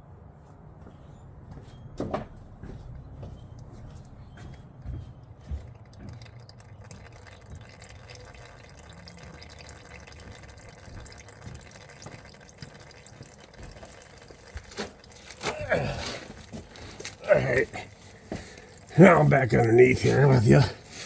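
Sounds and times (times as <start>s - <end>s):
oil draining into a pan: 5.6s - 21.0s.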